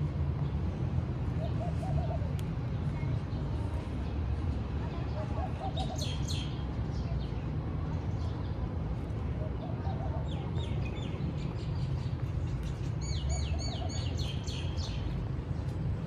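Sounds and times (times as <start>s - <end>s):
small birds chirping: 9.5s - 16.0s.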